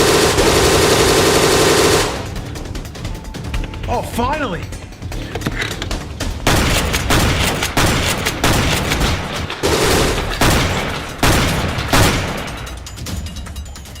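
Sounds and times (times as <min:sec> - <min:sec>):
rapid gunfire bursts: 0:00.0 - 0:02.7, 0:06.3 - 0:12.8.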